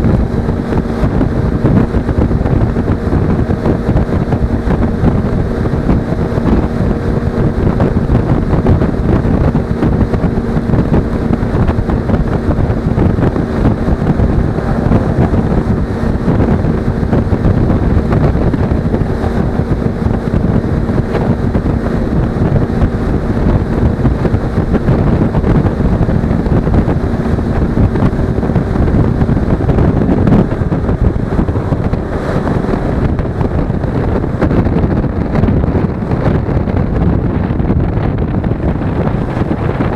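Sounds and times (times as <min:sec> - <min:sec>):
motorcycle engine droning: 0:00.0 - 0:39.9
wind buffeting microphone: 0:00.0 - 0:39.9.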